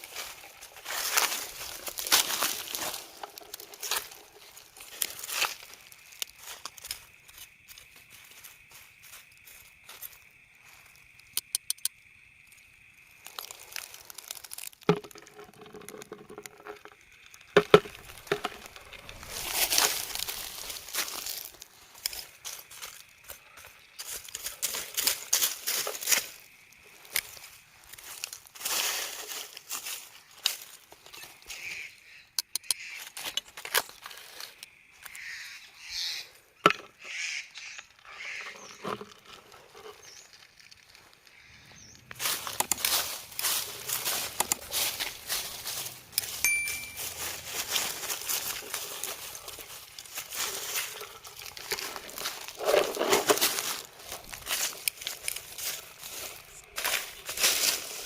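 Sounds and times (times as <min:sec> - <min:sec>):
rustling and crinkling handling: 0:00.0 - 0:10.8, 0:13.2 - 0:31.4, 0:42.1 - 0:58.0
sharp clicks and snaps: 0:11.2 - 0:12.0, 0:32.4 - 0:33.4.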